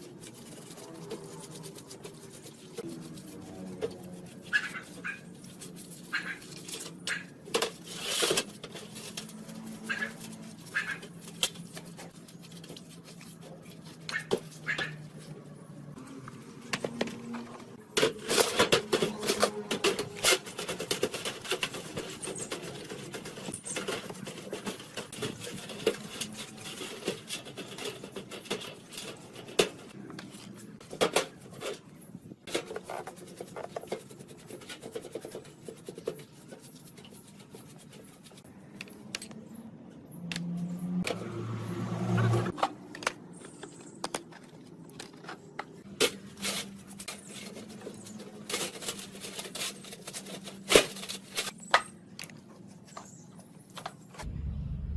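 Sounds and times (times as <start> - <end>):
scraping on metal: 0.0 - 15.3, 17.3 - 38.5.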